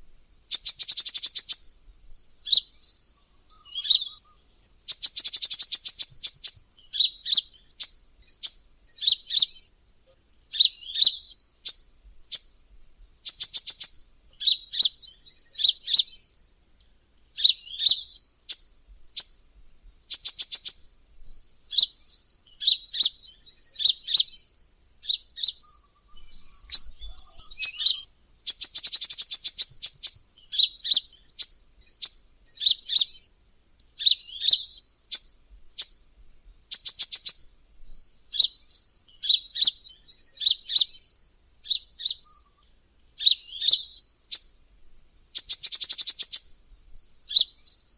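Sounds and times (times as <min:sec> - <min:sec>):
bird rattling trills: 0:00.4 - 0:01.7, 0:03.5 - 0:09.5, 0:25.1 - 0:32.2, 0:45.3 - 0:46.6
bird high chirp phrases: 0:00.4 - 0:44.6, 0:45.2 - 0:47.9.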